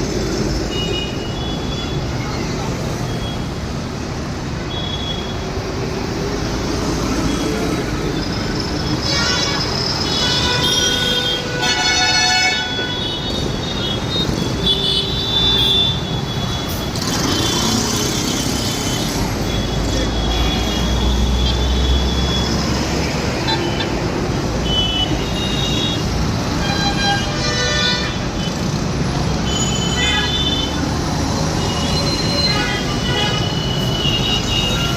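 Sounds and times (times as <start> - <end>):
engine and road rumble: 0.0 - 4.6, 12.6 - 34.9
vehicle horns honking: 9.0 - 17.7, 23.4 - 28.6, 29.4 - 30.8, 31.6 - 34.9.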